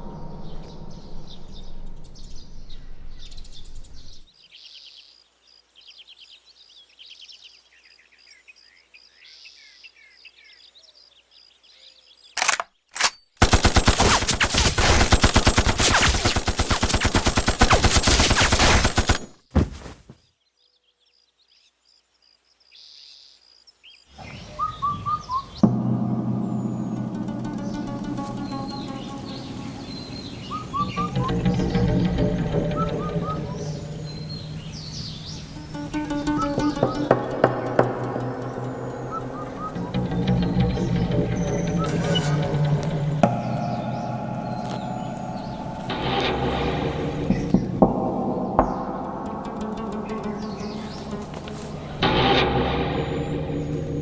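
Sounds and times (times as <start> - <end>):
gunshots: 12.4 - 19.7
rapid automatic gunfire: 13.4 - 19.4
birds chirping: 22.6 - 54.0.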